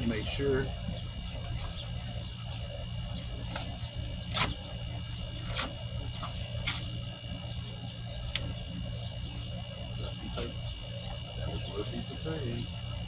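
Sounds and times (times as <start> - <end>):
packing tape tearing off cardboard: 4.3 - 4.7.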